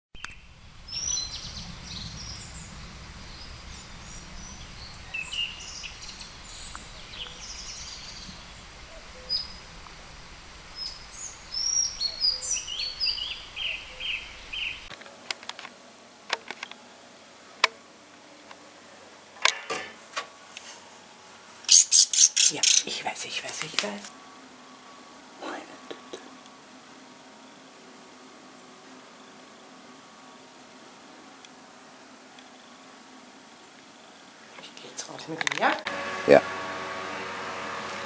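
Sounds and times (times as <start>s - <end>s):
birds chirping: 0.2s - 14.9s, 21.6s - 24.1s
low background noise: 0.2s - 38.0s.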